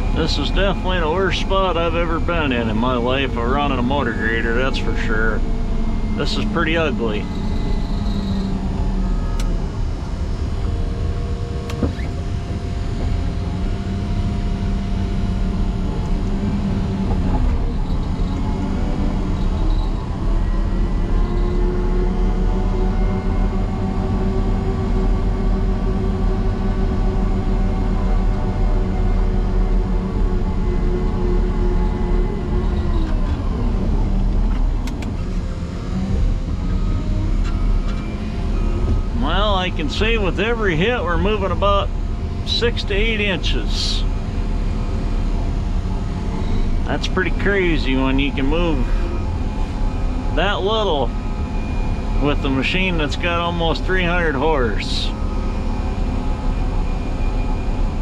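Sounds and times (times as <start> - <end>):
diesel engine under heavy load: 0.0 - 58.0.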